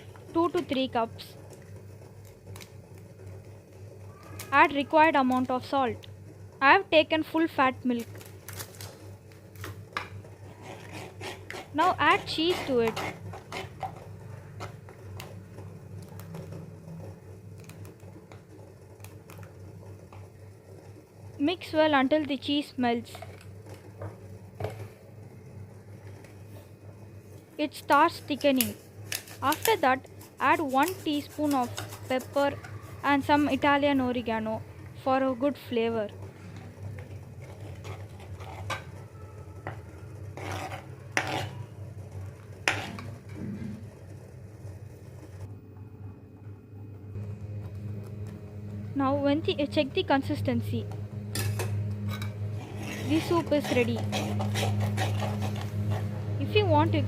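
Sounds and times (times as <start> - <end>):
steady low hum: 0.0 - 57.0
spoon stirring and scraping a pan: 9.9 - 19.5, 27.9 - 33.9, 36.6 - 43.4, 51.4 - 56.4.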